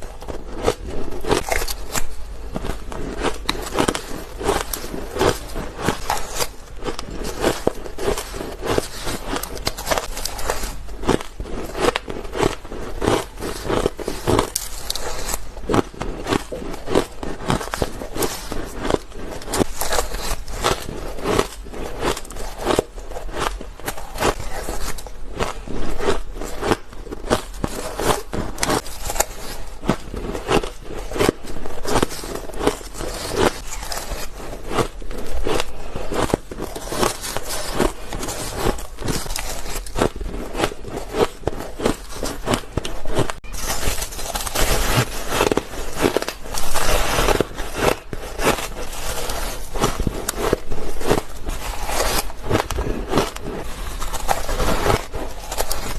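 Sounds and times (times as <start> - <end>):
ice crunching while chewed: 0.0 - 55.9.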